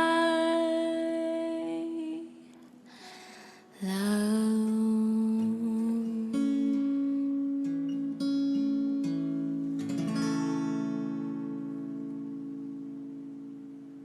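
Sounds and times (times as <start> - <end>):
acoustic guitar plucked notes: 3.6 - 14.0
strummed guitar chord ringing: 3.8 - 14.0.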